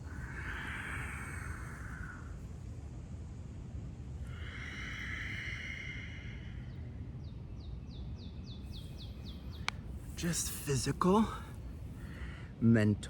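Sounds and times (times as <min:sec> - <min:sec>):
breathy exhale: 0:00.0 - 0:02.6, 0:04.2 - 0:07.0, 0:11.4 - 0:12.6
wind rumble on microphone: 0:00.0 - 0:12.6.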